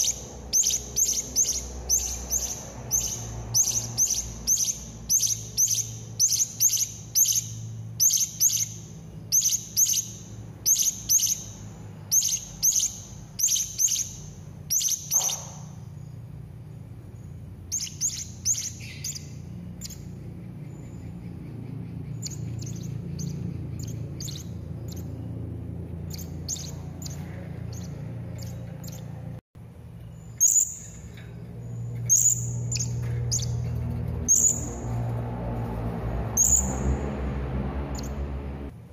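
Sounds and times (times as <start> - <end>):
parrot chirping: 0.0 - 16.2, 17.1 - 29.3, 30.2 - 31.1, 31.7 - 35.0, 36.3 - 37.1
low hum: 15.3 - 38.9.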